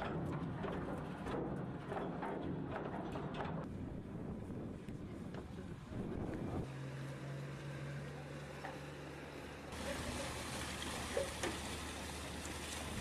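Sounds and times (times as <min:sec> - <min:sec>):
boat engine humming: 0:04.8 - 0:13.0.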